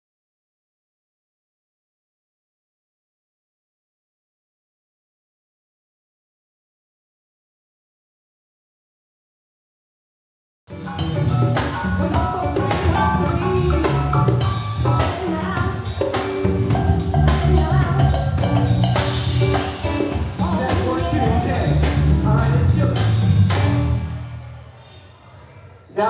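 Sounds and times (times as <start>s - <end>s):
live band playing instrumental: 10.7s - 24.1s
drum kit beat: 10.7s - 24.3s.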